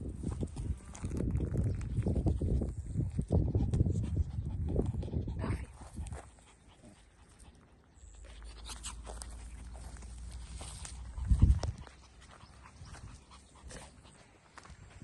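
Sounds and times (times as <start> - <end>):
puppy panting: 3.2 - 15.0.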